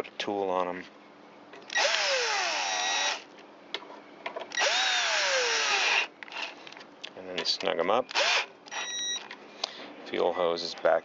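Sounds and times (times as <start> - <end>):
power drill driving bolts: 1.7 - 3.2, 4.5 - 6.6, 8.1 - 9.3.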